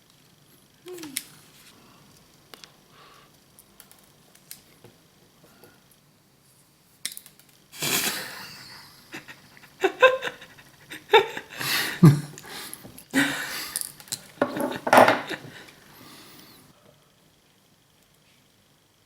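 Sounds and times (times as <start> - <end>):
tool clicks and taps: 14.0 - 15.5.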